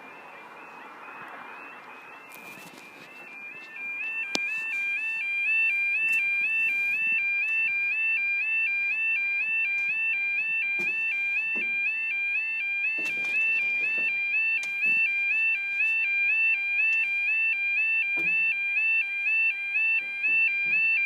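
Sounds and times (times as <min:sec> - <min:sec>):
level crossing alarm warbling: 0:00.0 - 0:21.0.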